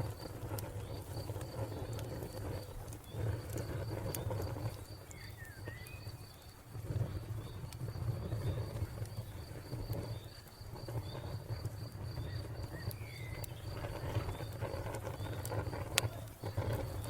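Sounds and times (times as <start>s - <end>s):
cricket chirping: 0.0s - 17.0s
wood fire crackling and popping: 0.0s - 17.0s.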